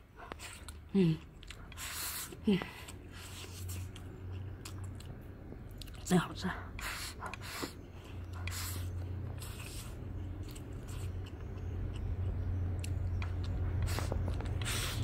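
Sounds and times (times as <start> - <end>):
steady low hum: 0.0 - 15.0
person biting and chewing: 0.3 - 6.0, 9.2 - 15.0.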